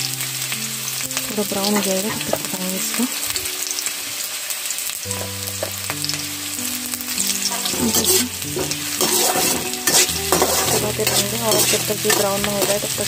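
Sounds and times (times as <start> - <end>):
onions sizzling in oil: 0.0 - 13.0
spatula scraping and tapping a pan: 7.2 - 13.0.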